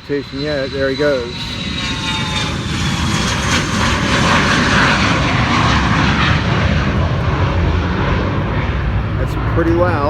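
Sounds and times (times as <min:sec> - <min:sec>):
jet engine roar: 0:00.0 - 0:10.0
high whine falling in pitch: 0:00.1 - 0:07.5.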